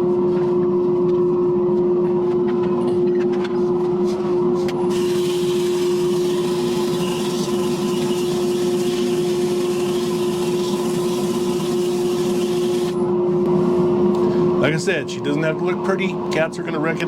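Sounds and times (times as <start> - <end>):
turning tool scraping wood: 4.9 - 13.0
wood lathe motor hum: 4.9 - 14.3.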